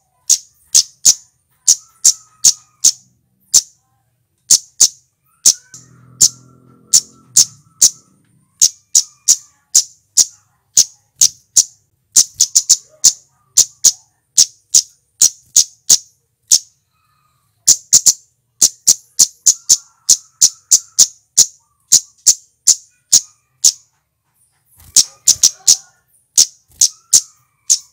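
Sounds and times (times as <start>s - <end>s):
bird giving sharp high calls: 4.5s - 23.9s, 24.8s - 27.9s.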